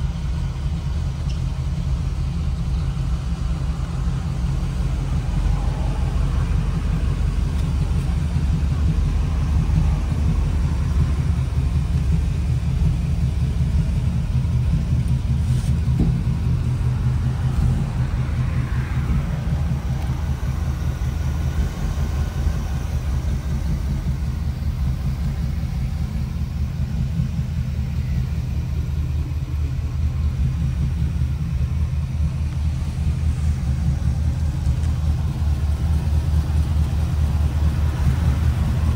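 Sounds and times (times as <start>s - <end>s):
engine running with deep exhaust: 0.0s - 38.9s.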